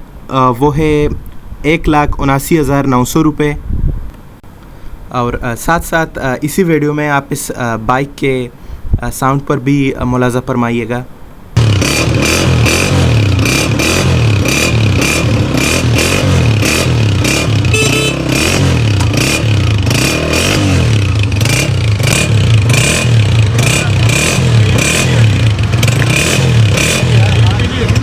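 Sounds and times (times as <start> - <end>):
motorcycle engine revving: 11.6 - 28.0.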